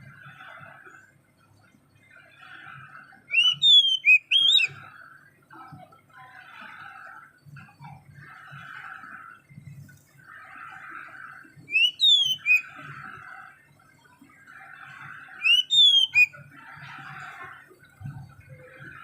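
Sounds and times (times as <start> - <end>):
bird whistled call: 3.3 - 4.8, 11.7 - 12.9, 15.4 - 16.4.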